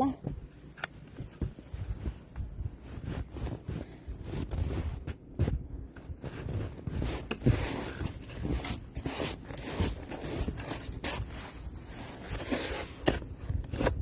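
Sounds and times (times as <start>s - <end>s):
snow shovel scraping snow: 6.3s - 13.0s.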